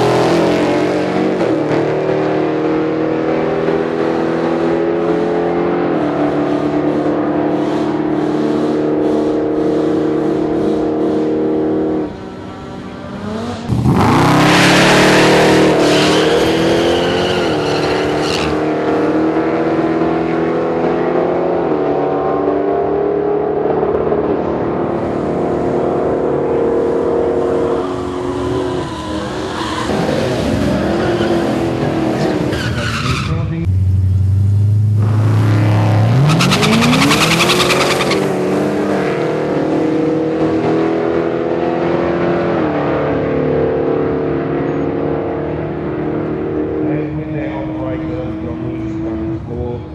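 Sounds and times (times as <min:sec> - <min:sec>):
drag car engines revving: 0:00.0 - 0:49.9
tyres squealing: 0:15.4 - 0:18.6, 0:27.6 - 0:33.6, 0:36.2 - 0:38.3.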